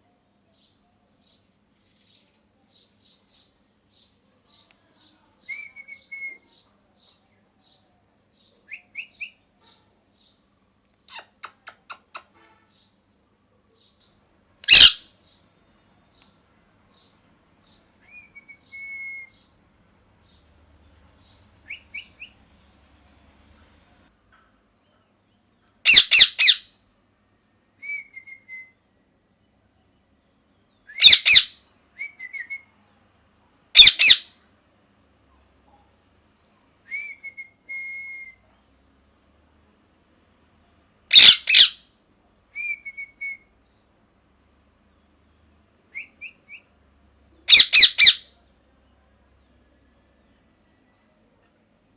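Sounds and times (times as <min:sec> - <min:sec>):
parrot screeching: 0:14.7 - 0:15.0, 0:25.9 - 0:26.6, 0:31.0 - 0:31.5, 0:33.8 - 0:34.3, 0:41.1 - 0:41.8, 0:47.5 - 0:48.2
soft whistled chirps: 0:36.9 - 0:38.6, 0:42.5 - 0:43.5.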